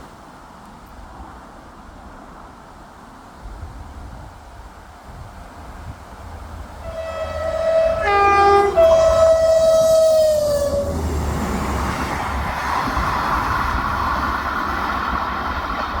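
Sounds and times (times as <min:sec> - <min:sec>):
passing train rumble: 0:00.0 - 0:16.0
train two-tone horn: 0:06.8 - 0:12.0.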